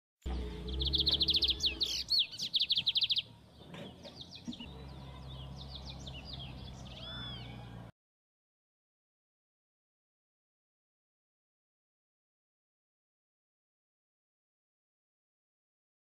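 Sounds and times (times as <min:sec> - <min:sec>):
songbird singing trills and chirps: 0:00.3 - 0:07.8.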